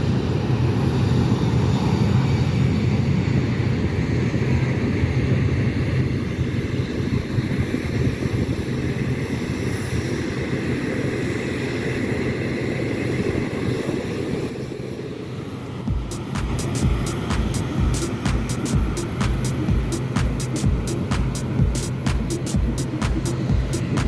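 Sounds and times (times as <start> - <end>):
faint jet engine whine: 0.0 - 24.0
jet engine rumble: 0.0 - 24.0.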